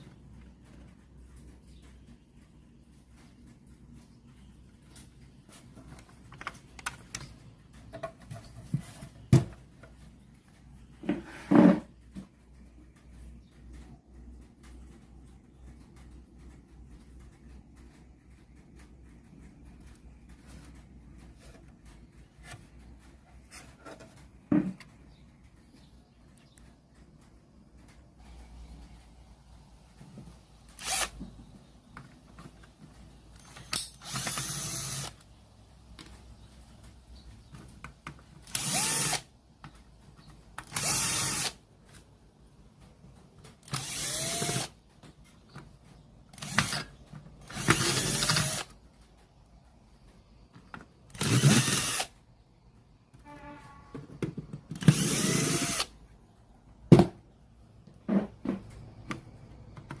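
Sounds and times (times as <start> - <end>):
electric screwdriver motor whine: 30.8 - 31.1, 43.8 - 44.7, 51.2 - 52.1, 54.9 - 55.9.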